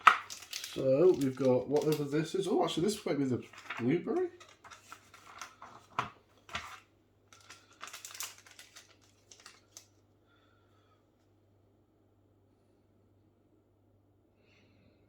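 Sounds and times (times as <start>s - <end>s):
plastic packets crinkling: 0.0s - 10.0s.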